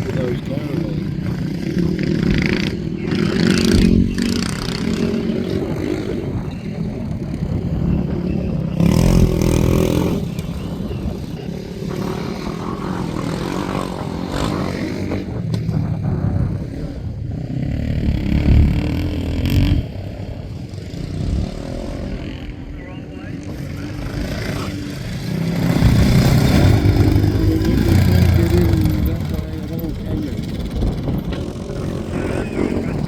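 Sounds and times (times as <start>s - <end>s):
motorcycle engines running: 0.0s - 33.0s.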